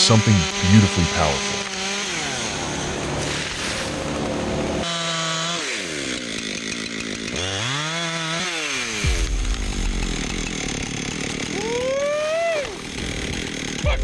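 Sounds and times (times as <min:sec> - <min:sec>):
chainsaw revving: 0:00.0 - 0:14.0
deep low rumble: 0:09.0 - 0:14.0.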